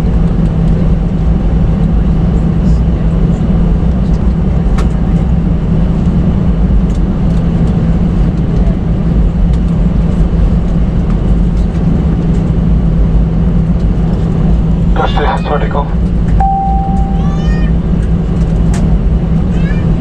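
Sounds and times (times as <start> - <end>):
jet engines rumbling in cabin: 0.0 - 20.0
low hum: 14.9 - 17.8.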